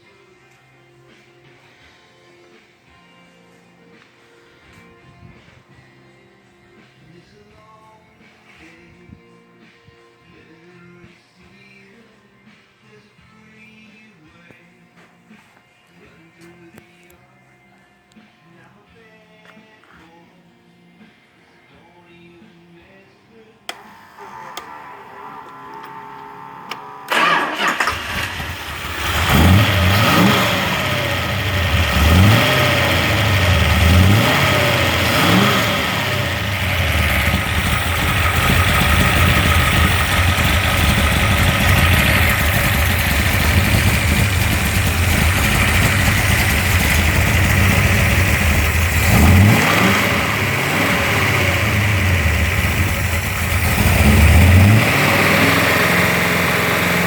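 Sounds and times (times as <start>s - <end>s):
car engine revving: 24.2s - 57.0s.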